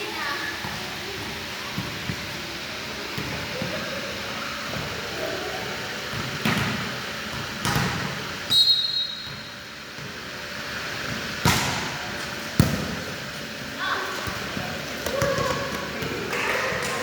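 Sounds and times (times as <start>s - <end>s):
volleyball being struck: 7.6s - 10.1s, 11.4s - 13.1s.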